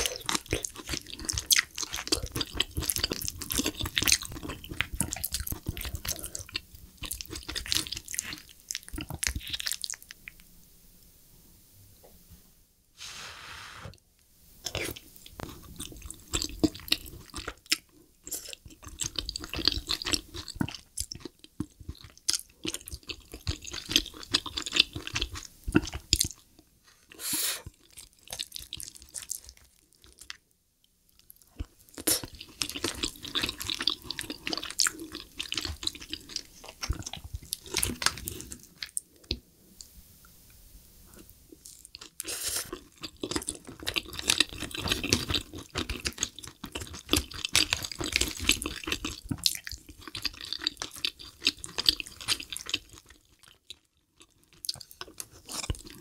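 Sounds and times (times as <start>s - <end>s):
wet chewing mouth sounds: 0.0s - 10.2s, 31.5s - 39.4s, 41.6s - 56.0s.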